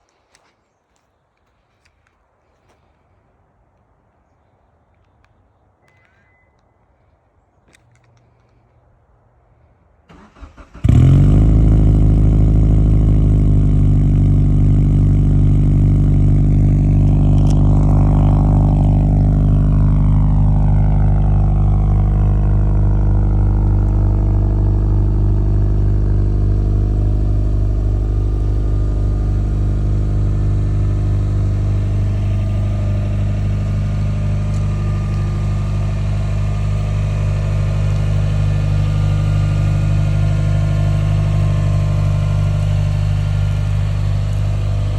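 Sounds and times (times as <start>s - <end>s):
engine cranking: 10.1s - 11.0s
car engine idling: 10.1s - 44.9s.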